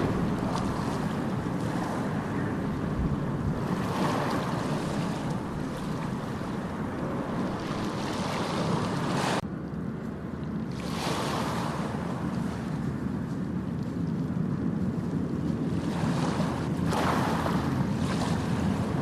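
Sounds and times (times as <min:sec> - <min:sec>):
ocean surf on beach: 0:00.0 - 0:09.4, 0:10.6 - 0:19.0
wind buffeting microphone: 0:00.0 - 0:19.0.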